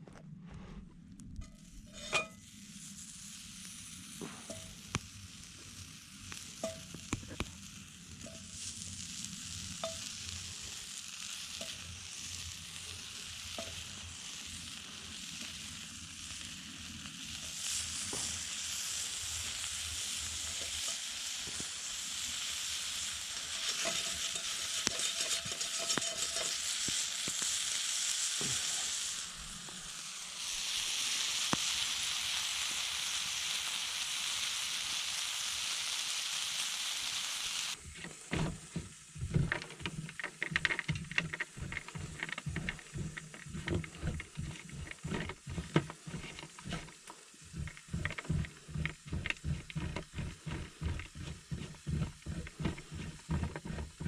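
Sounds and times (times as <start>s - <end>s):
food sizzling in a pan: 1.6s - 54.0s
utensil clicking on pan: 23.5s - 27.4s.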